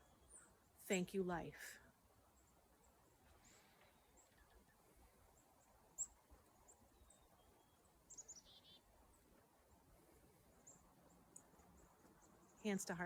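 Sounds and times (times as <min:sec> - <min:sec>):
faint bird chirps: 0:00.0 - 0:01.0, 0:01.7 - 0:13.0.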